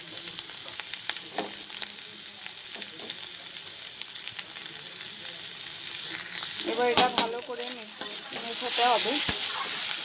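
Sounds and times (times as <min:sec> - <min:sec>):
food sizzling in oil: 0:00.0 - 0:10.0
steel spatula in pan: 0:06.0 - 0:10.0.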